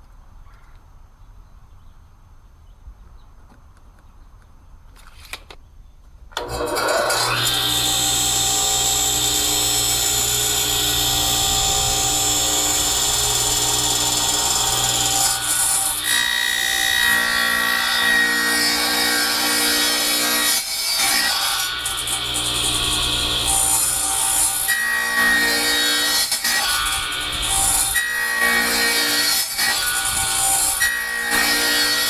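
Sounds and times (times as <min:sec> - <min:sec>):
power tool cutting wood: 0:06.4 - 0:32.0.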